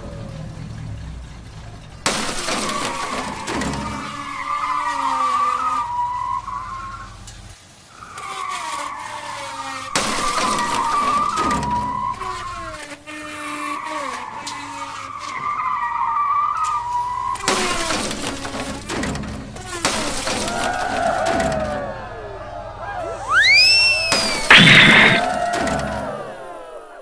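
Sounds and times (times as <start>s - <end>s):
race car engine tones: 0.0s - 27.0s
tyre squeal: 2.4s - 7.2s, 7.9s - 18.6s, 23.0s - 25.4s.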